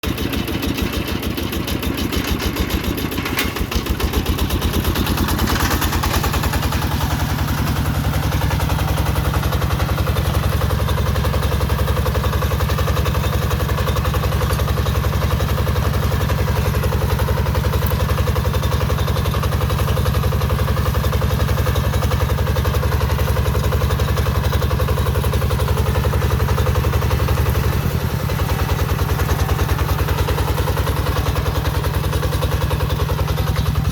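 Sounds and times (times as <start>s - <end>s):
diesel engine clattering: 0.0s - 33.9s.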